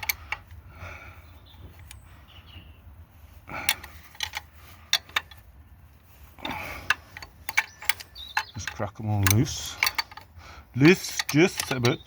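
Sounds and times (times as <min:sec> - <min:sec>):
metal tools clicking and clinking: 0:00.0 - 0:00.6, 0:03.6 - 0:05.5, 0:06.4 - 0:12.0.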